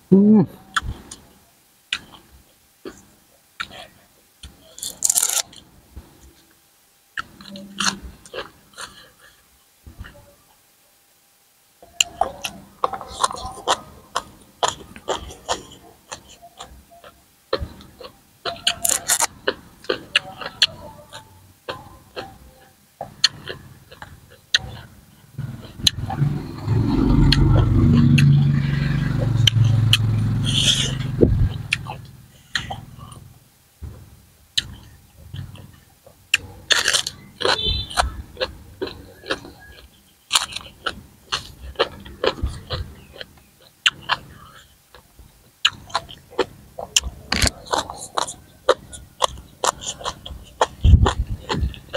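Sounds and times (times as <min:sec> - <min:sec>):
crunchy chewing: 0:01.9 - 0:05.7, 0:07.2 - 0:09.4, 0:11.9 - 0:33.3, 0:34.5 - 0:51.9
crisp crunch of biting vegetable: 0:04.6 - 0:05.6, 0:17.9 - 0:22.3, 0:36.3 - 0:44.7, 0:45.6 - 0:51.9.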